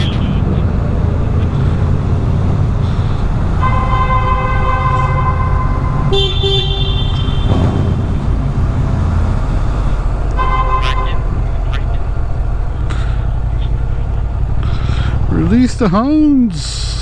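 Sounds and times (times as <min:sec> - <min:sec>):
motorcycle engine rumble: 0:00.0 - 0:17.0
vehicle horn blast: 0:01.5 - 0:09.5, 0:10.3 - 0:12.5
higher horn note: 0:03.3 - 0:09.0.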